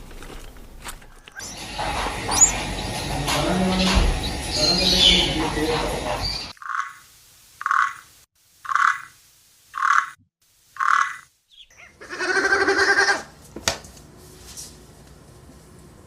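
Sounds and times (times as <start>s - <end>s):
raspy animal calls: 7.6s - 9.2s, 9.8s - 10.2s, 10.8s - 13.3s
farm animal bleating: 11.8s - 13.3s.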